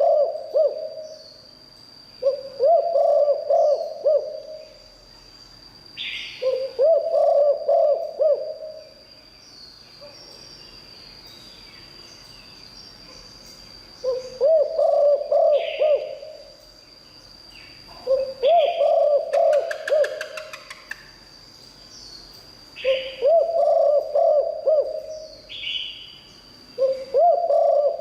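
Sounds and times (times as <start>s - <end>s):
dove cooing: 0.0s - 1.2s, 2.2s - 4.8s, 6.4s - 8.9s, 14.0s - 16.5s, 18.0s - 20.8s, 22.8s - 25.4s, 26.8s - 28.0s.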